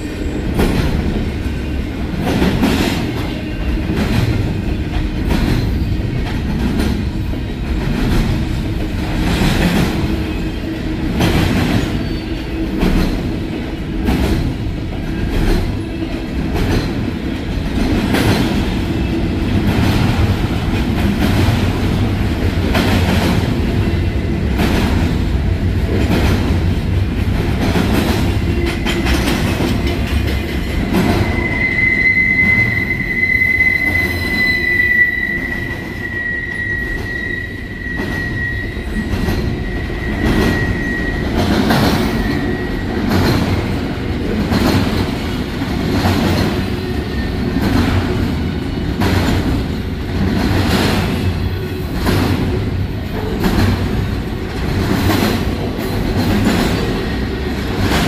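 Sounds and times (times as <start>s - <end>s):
train wheels clacking: 0.0s - 58.0s
high steady wheel squeal: 31.2s - 41.5s.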